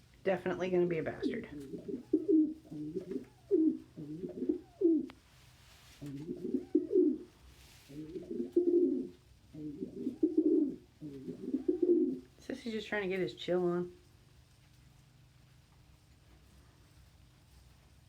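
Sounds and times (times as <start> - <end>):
pigeons cooing: 1.1 - 5.2, 6.0 - 12.3.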